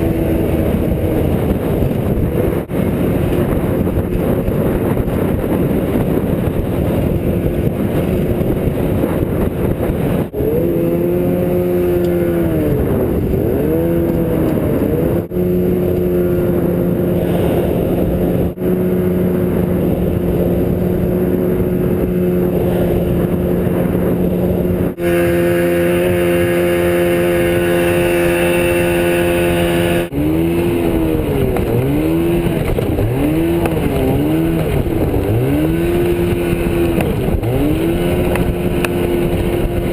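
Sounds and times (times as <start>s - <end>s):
outboard motor engine: 0.0s - 39.9s
rush of wind and water: 0.0s - 39.9s.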